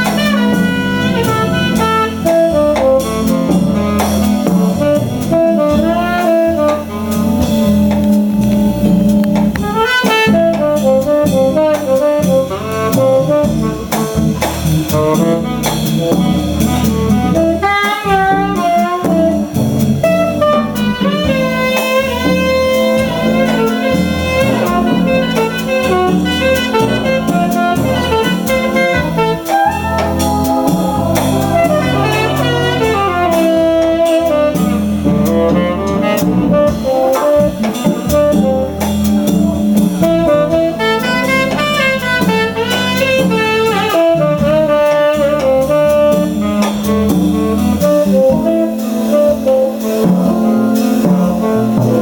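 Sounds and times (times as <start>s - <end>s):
bass: 0.0s - 52.0s
drum kit: 0.0s - 52.0s
saxophone melody: 0.0s - 52.0s.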